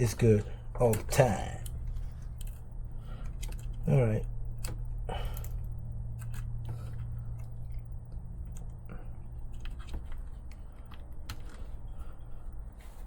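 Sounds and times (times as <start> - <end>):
steady low hum: 0.0 - 13.0
small parts clicking and tapping: 0.4 - 12.4.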